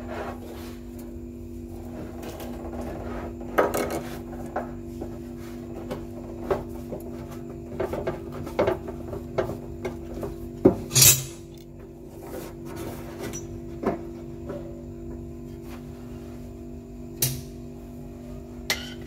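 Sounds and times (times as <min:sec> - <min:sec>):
metal stove parts clinking: 0:10.9 - 0:11.6.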